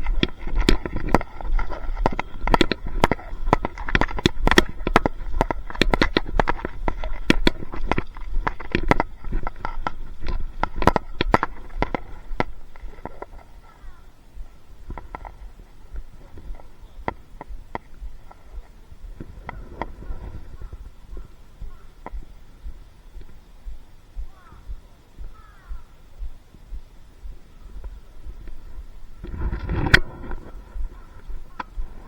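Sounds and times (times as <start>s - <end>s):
sharp crackling clicks: 0.0s - 14.0s, 27.3s - 32.0s.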